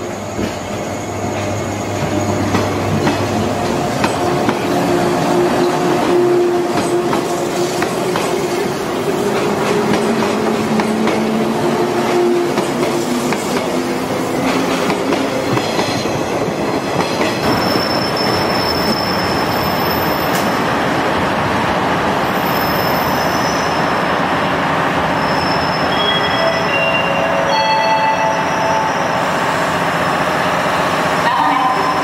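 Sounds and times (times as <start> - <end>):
thin high squeal: 25.2 - 30.4.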